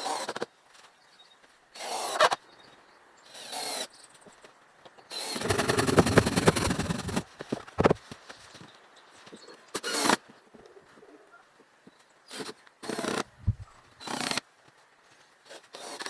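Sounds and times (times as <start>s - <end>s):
tool rasping wood: 5.2s - 7.3s
rapid rattling strokes: 5.3s - 7.3s.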